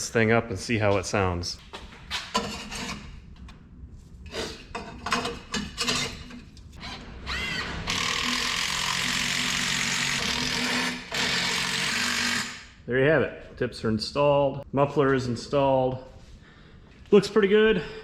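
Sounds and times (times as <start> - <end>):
small motor-driven tool running: 6.8 - 12.6.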